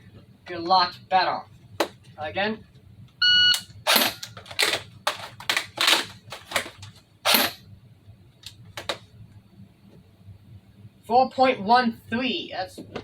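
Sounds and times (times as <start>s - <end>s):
shot timer beep: 3.2s - 3.7s
plastic gun clacks and knocks: 4.2s - 7.0s.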